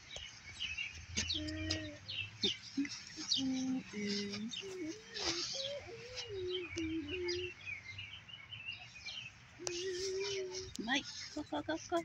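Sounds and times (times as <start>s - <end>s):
small birds chirping: 0.0s - 12.0s
person humming: 1.3s - 7.6s, 9.6s - 10.9s.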